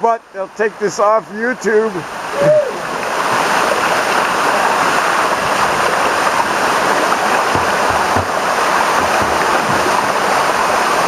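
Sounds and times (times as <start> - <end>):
waterfall pouring into pool: 0.4 - 11.0.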